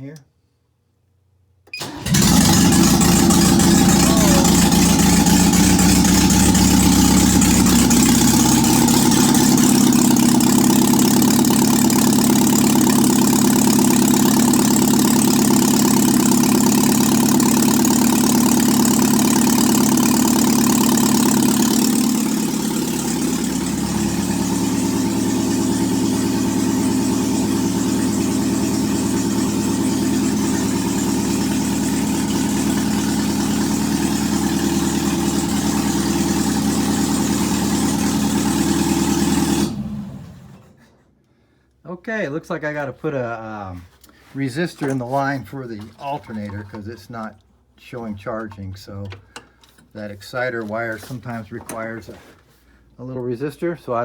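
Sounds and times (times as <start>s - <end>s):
car engine idling loudly: 2.0s - 40.2s.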